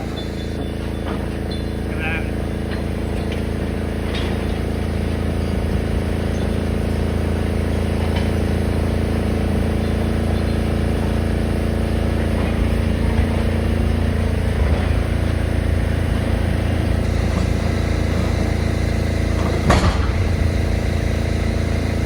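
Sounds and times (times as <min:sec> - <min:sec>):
diesel machinery engine running: 0:00.0 - 0:22.0.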